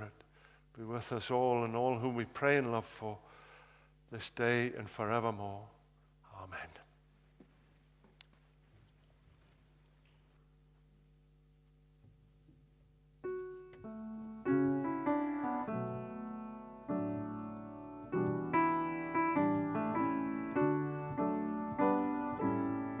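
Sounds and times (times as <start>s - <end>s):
piano playing slow chords: 13.2s - 23.0s.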